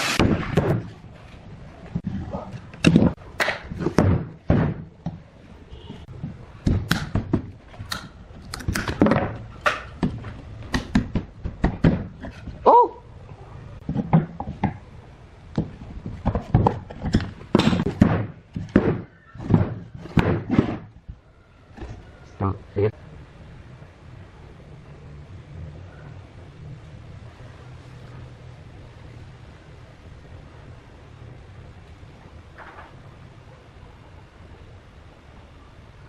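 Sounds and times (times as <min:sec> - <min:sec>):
heavy knocks and thunks: 0:02.8 - 0:05.2, 0:08.9 - 0:12.6, 0:15.6 - 0:21.2.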